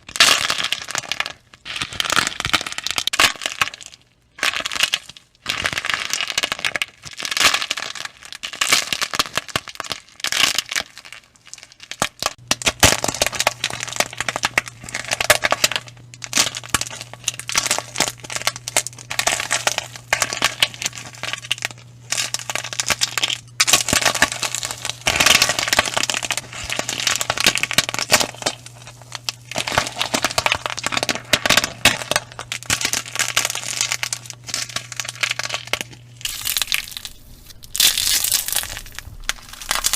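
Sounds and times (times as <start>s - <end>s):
crunchy slime crackling: 0.0s - 39.9s
steady low hum: 12.3s - 39.9s.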